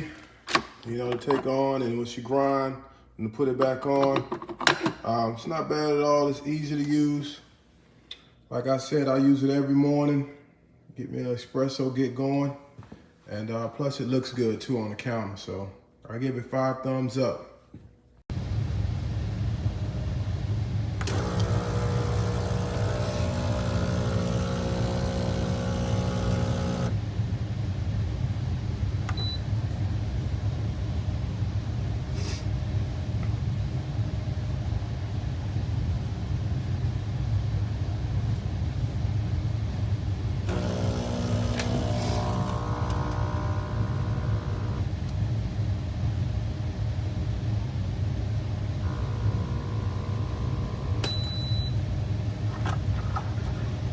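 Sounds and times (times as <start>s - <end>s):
espresso machine humming: 21.0s - 27.0s, 40.5s - 44.8s, 48.7s - 53.9s
motor whine: 21.0s - 27.0s, 40.5s - 44.8s, 48.8s - 53.9s.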